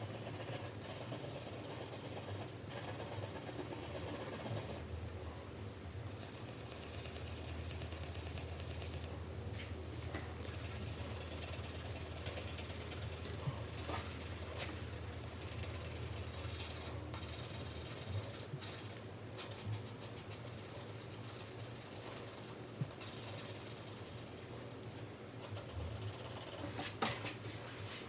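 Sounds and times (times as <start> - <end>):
pencil shading on paper: 10.5 - 24.5.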